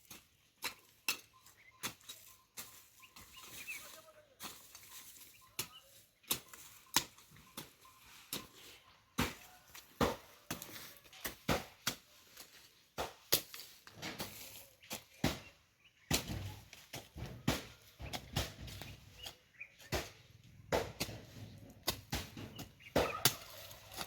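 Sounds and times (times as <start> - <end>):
hoe chopping into soil: 9.2 - 24.0.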